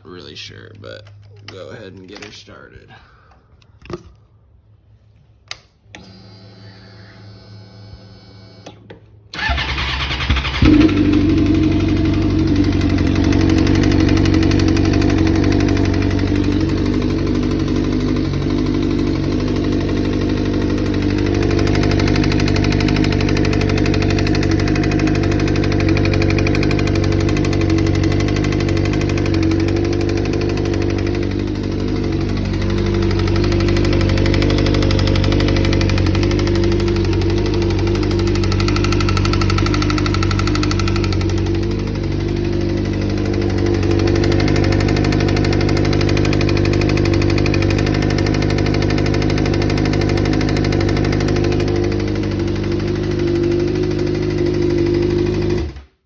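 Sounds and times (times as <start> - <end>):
click: 5.2 - 6.1, 8.6 - 9.1
starter cranking: 9.3 - 53.2
motorcycle engine idling with knock: 10.6 - 55.9.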